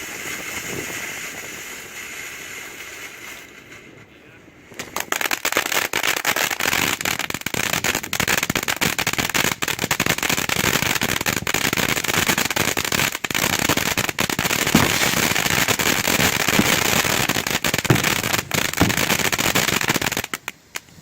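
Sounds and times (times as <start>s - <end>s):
firework crackling: 0.0s - 21.0s
sparks hissing: 11.5s - 20.8s.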